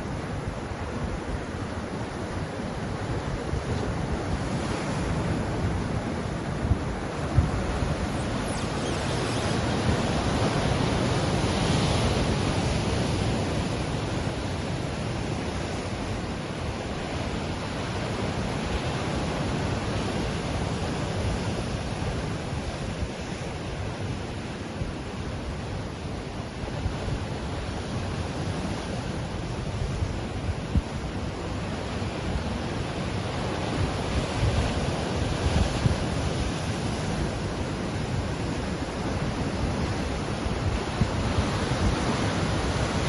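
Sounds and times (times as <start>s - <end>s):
ocean waves washing on shore: 0.0s - 43.0s.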